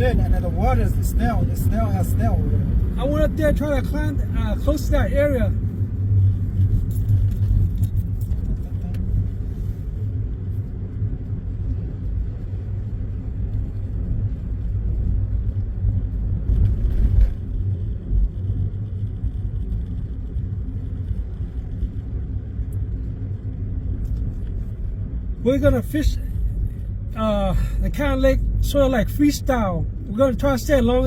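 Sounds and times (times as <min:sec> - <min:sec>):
car road rumble inside cabin: 0:00.0 - 0:31.0.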